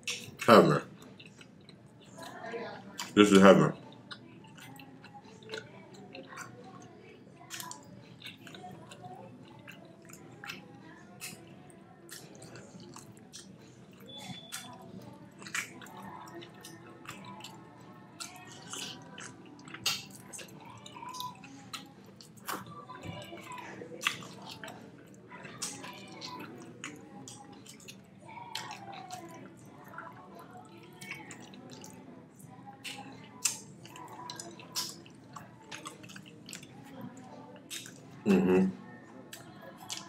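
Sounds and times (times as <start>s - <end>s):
mouth clicks and smacks: 0.0s - 0.5s, 18.2s - 20.4s, 32.8s - 36.7s, 37.6s - 38.0s
person chewing meat: 0.0s - 2.4s, 3.0s - 38.1s, 39.3s - 40.0s.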